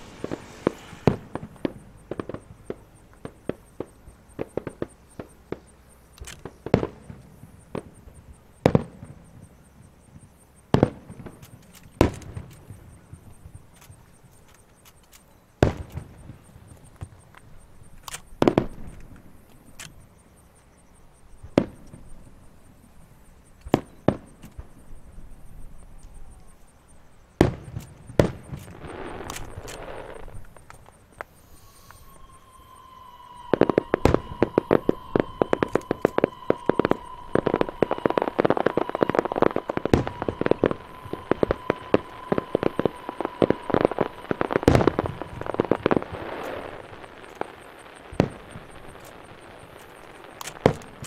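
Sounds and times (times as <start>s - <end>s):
steady high whistle: 0.0s - 3.1s, 28.7s - 51.0s
firework shell bursts: 0.0s - 5.7s, 27.4s - 51.0s
fireworks crackling: 0.0s - 20.4s, 21.3s - 51.0s.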